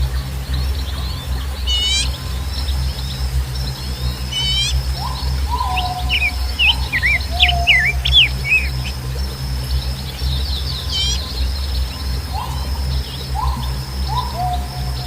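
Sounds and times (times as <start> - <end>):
birds chirping: 0.0 - 15.0
high insect-like drone: 0.0 - 15.0
low steady rumble: 0.0 - 15.0
rising bird call: 4.3 - 9.0, 10.8 - 11.4.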